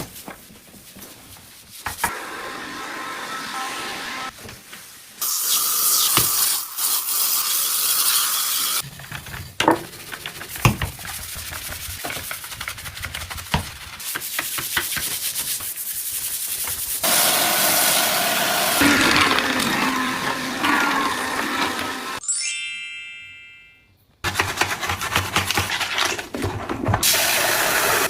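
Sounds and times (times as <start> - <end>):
hand scrubbing a surface: 10.4 - 21.6.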